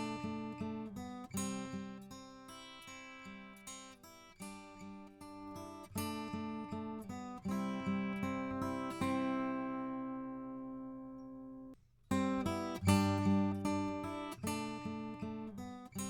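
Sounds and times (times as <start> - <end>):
acoustic guitar strumming chords: 5.5 - 16.0.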